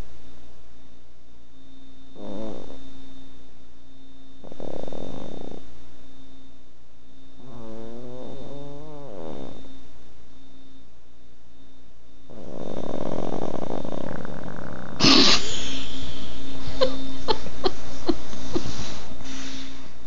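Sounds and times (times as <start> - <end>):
dog snoring: 2.2 - 3.0, 4.4 - 5.8, 7.4 - 9.8, 12.3 - 17.8.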